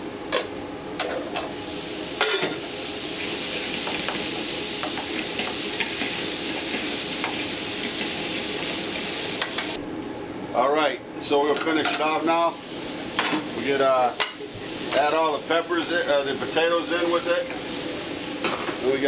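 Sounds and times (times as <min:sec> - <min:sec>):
meat sizzling in a skillet: 0:01.4 - 0:09.8, 0:12.1 - 0:19.0.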